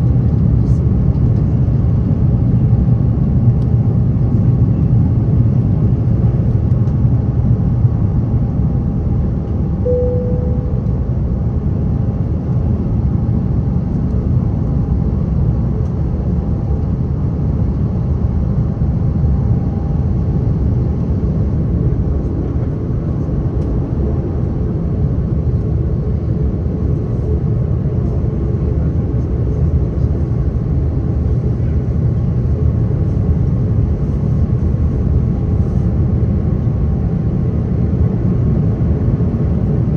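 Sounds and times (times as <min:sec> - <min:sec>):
jet engine roar in cabin: 0:00.0 - 0:39.9
faint steady tones: 0:09.8 - 0:11.0
short tone: 0:09.8 - 0:11.2.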